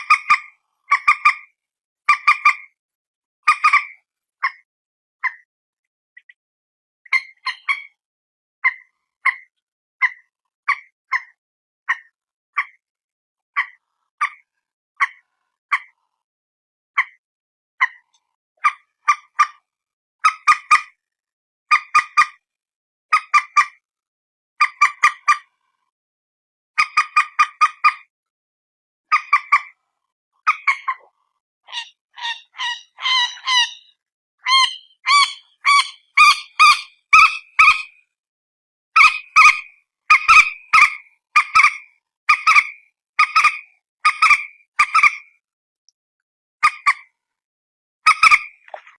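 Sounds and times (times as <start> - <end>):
bird honking calls: 31.7 - 37.9.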